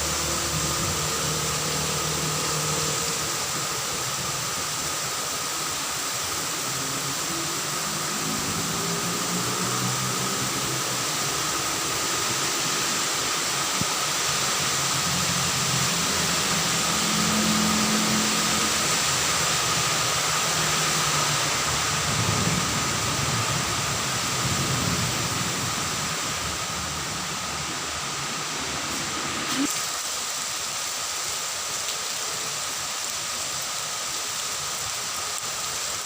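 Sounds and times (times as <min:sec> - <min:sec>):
steady rain hiss: 0:00.0 - 0:36.0.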